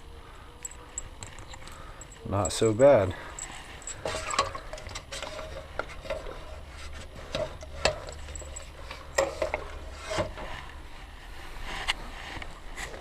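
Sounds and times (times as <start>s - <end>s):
metal wheel parts scraping: 0.7s - 10.7s.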